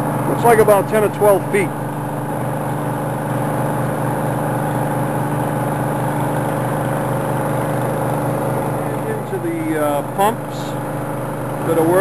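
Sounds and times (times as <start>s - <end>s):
pumps droning: 0.0s - 12.0s.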